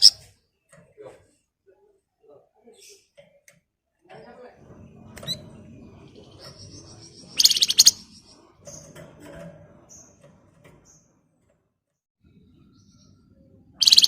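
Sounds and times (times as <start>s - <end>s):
high bird chirps: 6.2s - 8.9s, 12.7s - 14.0s
songbird buzzy trill: 7.0s - 8.1s, 13.8s - 14.0s.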